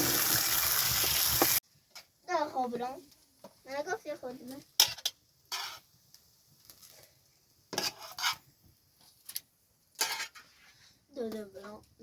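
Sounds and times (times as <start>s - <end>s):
metal dishes clattering and scraping: 4.8s - 5.9s, 7.7s - 8.5s, 10.0s - 10.9s.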